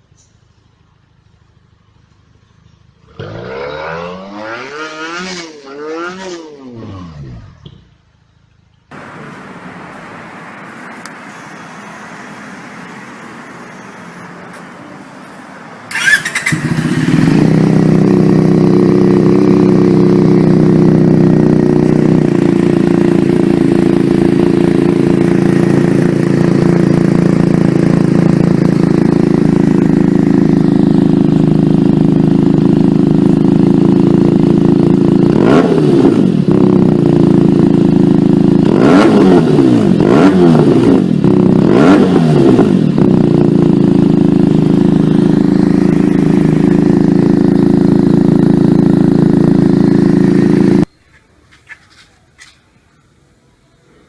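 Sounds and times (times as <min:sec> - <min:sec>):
motorcycle engine idling: 0:00.0 - 0:03.6, 0:07.6 - 0:52.7
engine revving: 0:03.0 - 0:07.8, 0:08.9 - 0:50.9.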